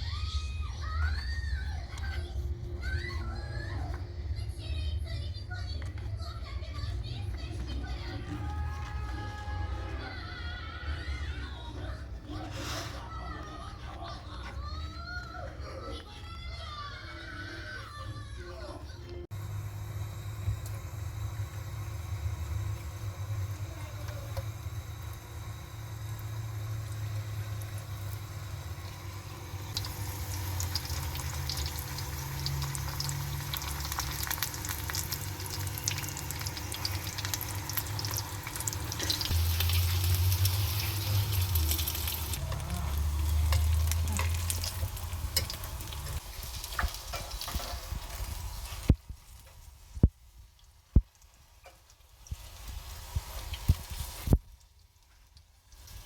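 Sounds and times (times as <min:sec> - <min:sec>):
steady low hum: 0:18.9 - 0:51.2
food sizzling in a pan: 0:19.3 - 0:56.0.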